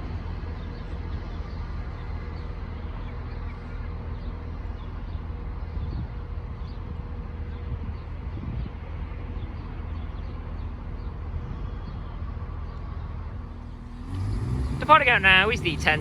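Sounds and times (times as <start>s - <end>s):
diesel train engine idling: 10.4s - 16.0s.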